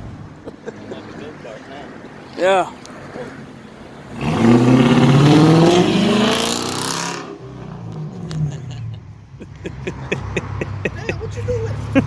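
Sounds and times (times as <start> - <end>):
car engine starting and revving: 4.0 - 8.8.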